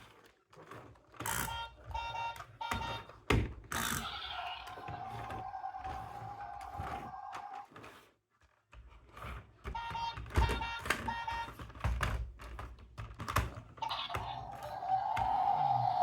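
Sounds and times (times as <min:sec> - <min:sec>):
plastic clicks and knocks: 0:09.6 - 0:14.2.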